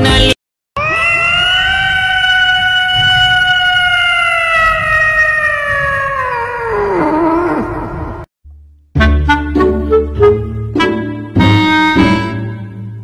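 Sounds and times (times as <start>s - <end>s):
cat yowling: 0.8s - 8.2s.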